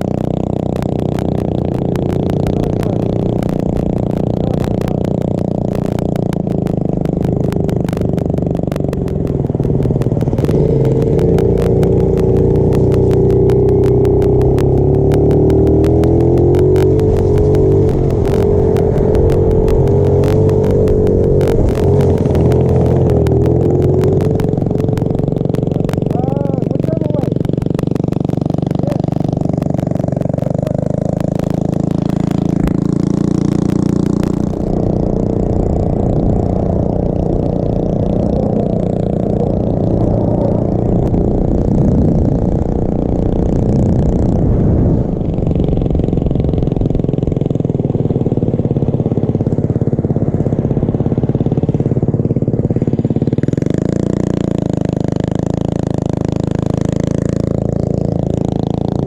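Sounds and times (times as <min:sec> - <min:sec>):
rapid ticking: 0:00.0 - 0:59.0
small motorbike engine revving: 0:00.0 - 0:59.0.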